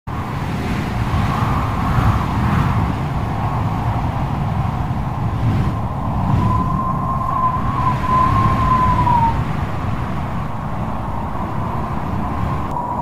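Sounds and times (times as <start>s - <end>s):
storm wind howling: 0.1s - 13.0s
steady whistling tone: 3.4s - 9.5s, 10.4s - 13.0s.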